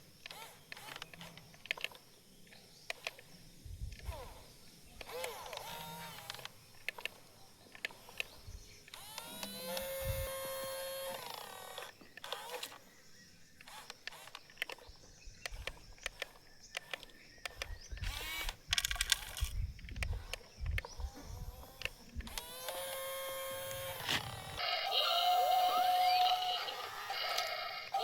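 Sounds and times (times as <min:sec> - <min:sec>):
small electric motor whirring: 0:00.1 - 0:02.0, 0:02.9 - 0:07.2, 0:07.8 - 0:12.9, 0:13.5 - 0:28.0
plastic parts clicking and knocking: 0:00.2 - 0:04.1, 0:05.0 - 0:10.2, 0:13.6 - 0:24.6.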